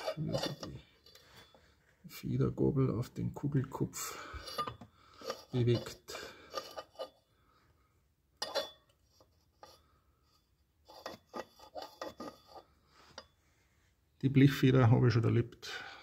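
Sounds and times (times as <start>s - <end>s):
metal lever scraping and clicking: 0.0s - 1.2s.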